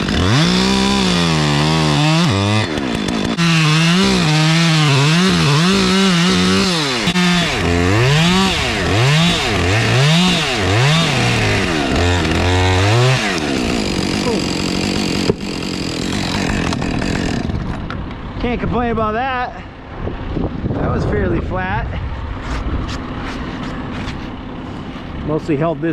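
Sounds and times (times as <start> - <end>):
chainsaw revving: 0.0 - 17.9, 23.0 - 25.4.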